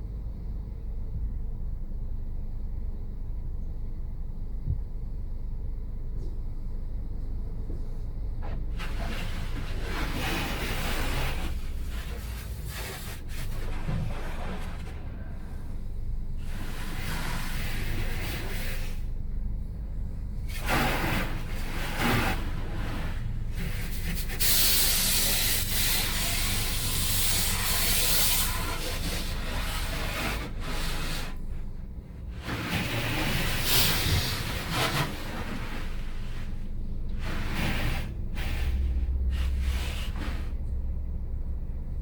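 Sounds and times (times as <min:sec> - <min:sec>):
low machine hum: 0:00.0 - 0:42.0
water spraying with loud hiss: 0:08.8 - 0:14.8, 0:16.4 - 0:19.1, 0:20.5 - 0:31.4, 0:32.4 - 0:36.6, 0:37.2 - 0:40.5
brushes working over car: 0:20.5 - 0:31.4.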